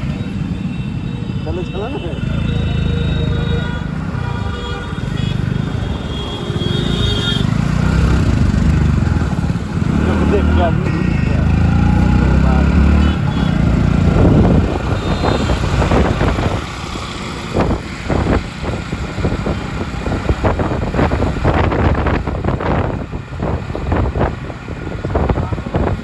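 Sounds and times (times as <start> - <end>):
motor vehicle engines running: 0.0 - 26.0
wind noise on microphone: 13.3 - 26.0.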